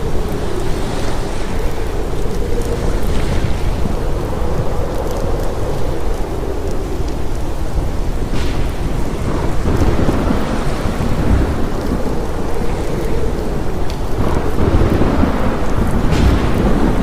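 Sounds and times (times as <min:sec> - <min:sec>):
heavy rain: 0:00.0 - 0:17.0
low rumbling thunder: 0:00.0 - 0:17.0.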